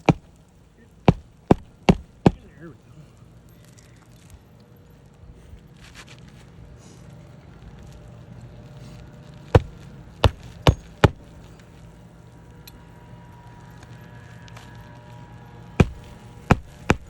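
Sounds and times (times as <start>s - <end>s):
hammer striking roofing nail: 0.0s - 0.4s, 1.1s - 2.5s, 9.6s - 11.4s, 15.8s - 17.0s.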